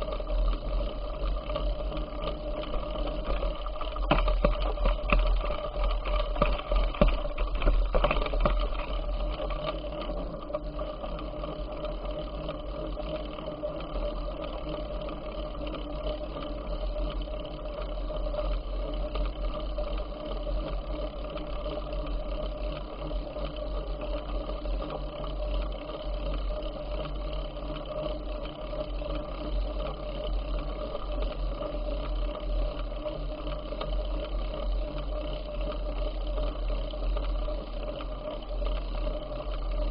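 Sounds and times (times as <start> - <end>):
mechanical hum of bicycle: 0.0 - 39.9
rattling clicks and knocks: 2.2 - 10.2.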